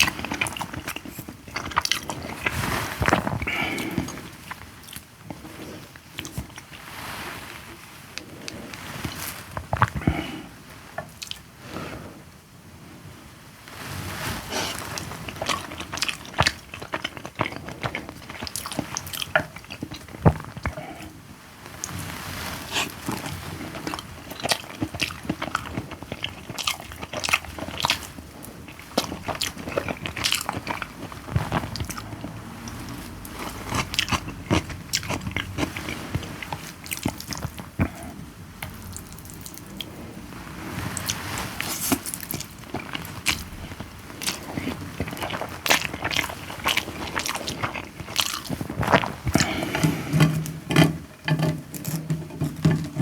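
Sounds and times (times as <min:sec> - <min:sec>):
person chewing and biting: 0:00.0 - 0:06.8, 0:14.6 - 0:21.1, 0:22.8 - 0:40.2, 0:40.9 - 0:51.0.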